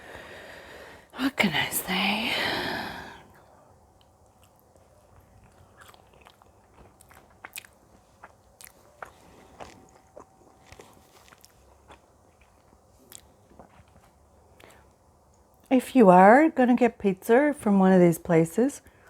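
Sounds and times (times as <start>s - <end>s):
chewing and biting food: 3.8s - 15.7s
small crunches: 4.0s - 14.8s.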